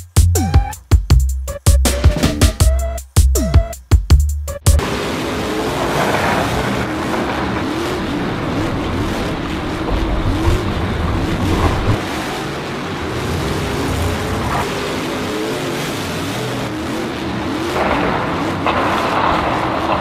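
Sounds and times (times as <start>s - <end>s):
racing vehicle engines: 4.6s - 20.0s.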